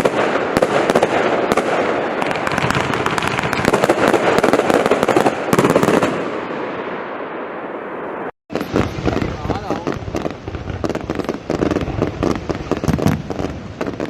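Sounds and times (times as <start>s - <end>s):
firework crackling and popping: 0.0s - 7.1s, 8.0s - 14.0s.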